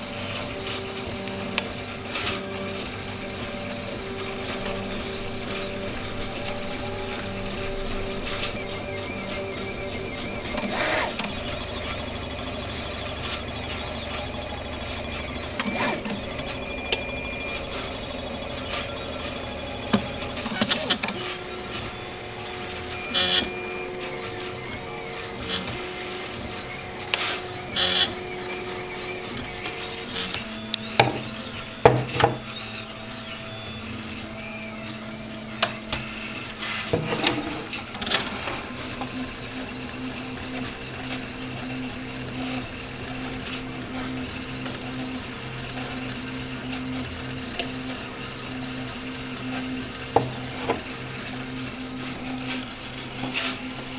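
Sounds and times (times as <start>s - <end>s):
printer clicks and ticks: 0.0s - 53.9s
stepper motors whining: 0.0s - 53.9s.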